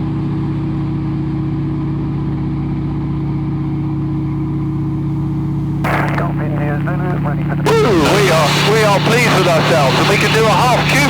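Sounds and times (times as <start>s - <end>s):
propeller plane engine droning: 3.0s - 11.0s.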